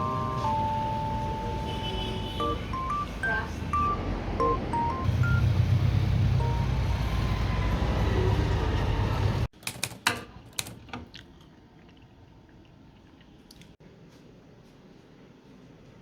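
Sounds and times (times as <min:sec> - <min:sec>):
rumble and hiss of street noise: 0:00.0 - 0:09.5.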